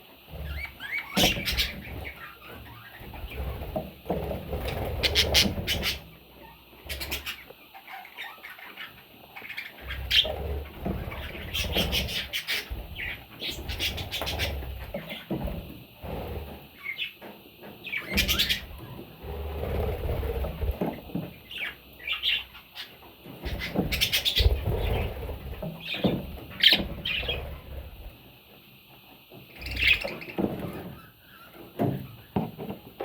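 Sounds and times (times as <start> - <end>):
baby parrots chirping: 4.6 - 10.3, 17.9 - 18.7, 29.6 - 31.5.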